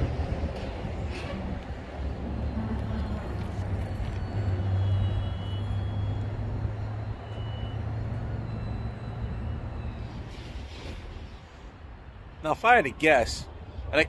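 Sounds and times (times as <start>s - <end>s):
train low drone: 0.0s - 4.9s.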